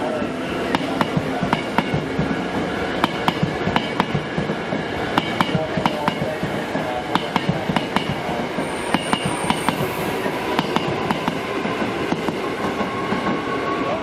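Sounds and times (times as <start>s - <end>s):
train rumble: 0.0s - 14.0s
high wheel squeal: 8.6s - 11.4s.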